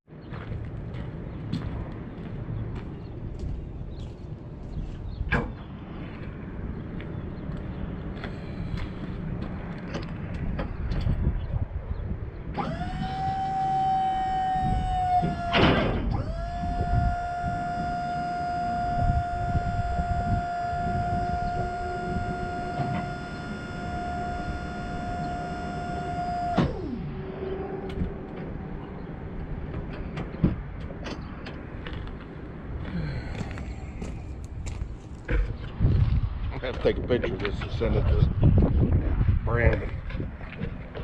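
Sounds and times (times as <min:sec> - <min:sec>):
small electric motor whining: 0:12.5 - 0:28.6.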